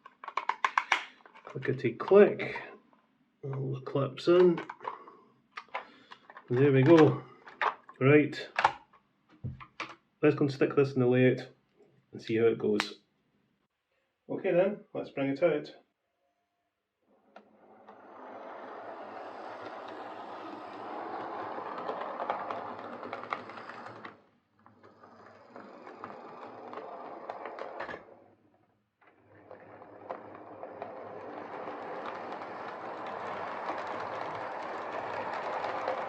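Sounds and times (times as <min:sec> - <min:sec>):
model train motor whirr: 0:17.5 - 0:28.1, 0:29.3 - 0:36.0.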